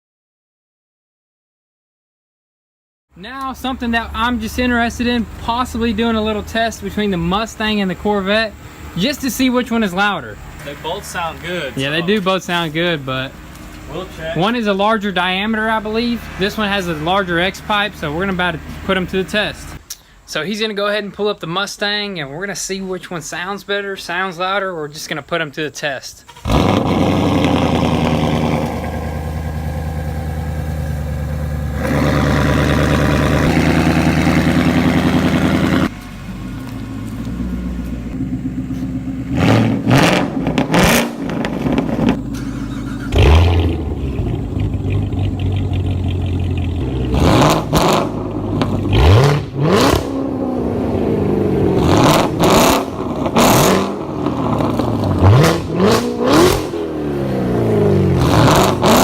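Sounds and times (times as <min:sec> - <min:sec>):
sports car engine revving: 0:26.3 - 0:59.0.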